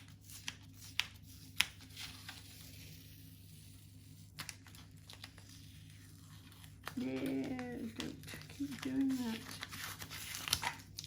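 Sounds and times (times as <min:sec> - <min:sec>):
tape peeling off paper: 0:04.1 - 0:11.0.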